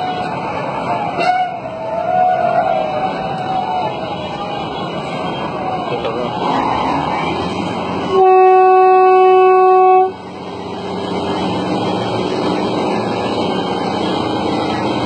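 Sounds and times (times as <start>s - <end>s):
traffic noise: 0.0s - 15.0s
horn blast: 8.0s - 10.2s.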